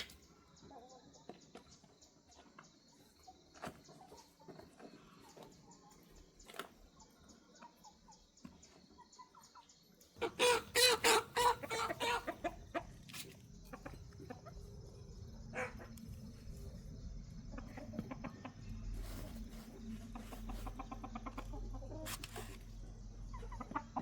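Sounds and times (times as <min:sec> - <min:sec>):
chicken clucking: 0:00.0 - 0:24.0
low rumble: 0:13.5 - 0:21.5.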